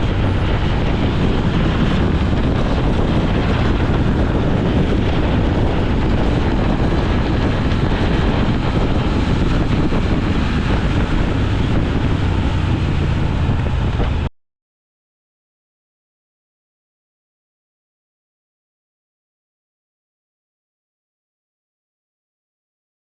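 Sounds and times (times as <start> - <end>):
motorcycle engine: 0.0 - 14.3
road noise: 0.0 - 14.3
wind buffeting microphone: 0.0 - 14.3.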